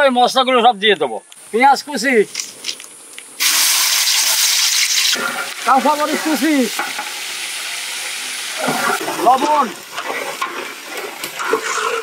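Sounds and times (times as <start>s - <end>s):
chillies sizzling in hot oil: 3.4s - 12.0s.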